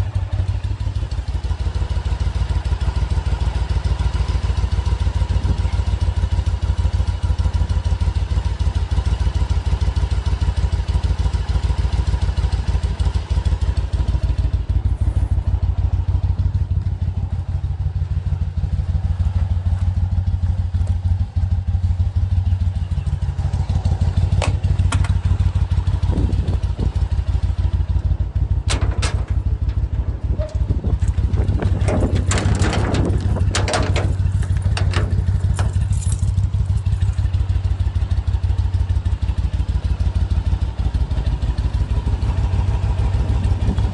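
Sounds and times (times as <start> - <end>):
motorcycle engine running: 0.0 - 43.9
sharp clicks and clatter: 24.3 - 25.3, 28.6 - 37.3.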